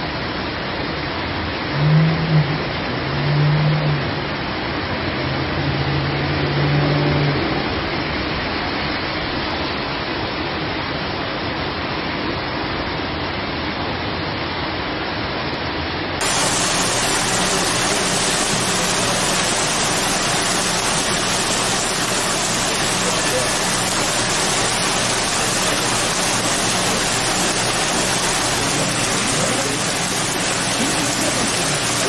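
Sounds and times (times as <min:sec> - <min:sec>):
floodwater running over street: 0:16.2 - 0:32.0
heavy rain pouring: 0:16.2 - 0:32.0
rain falling through trees: 0:16.2 - 0:32.0.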